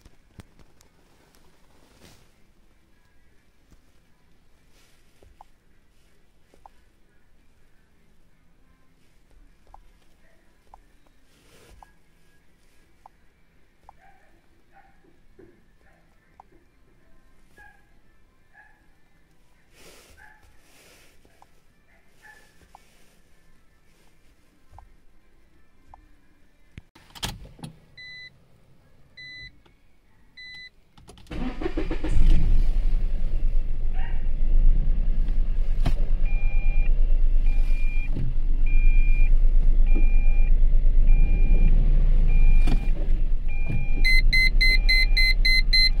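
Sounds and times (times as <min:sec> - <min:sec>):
car engine starting and idling: 0:31.0 - 0:46.0
short beeps: 0:36.3 - 0:36.9, 0:37.5 - 0:38.1, 0:38.7 - 0:39.3, 0:39.9 - 0:40.5, 0:41.1 - 0:41.7, 0:43.5 - 0:46.0.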